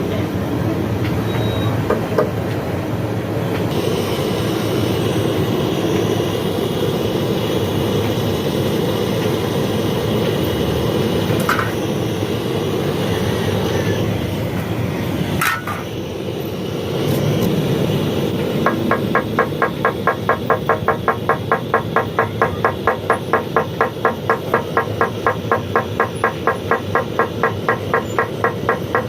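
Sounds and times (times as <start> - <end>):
rushing rumbling machine noise: 0.0 - 29.0.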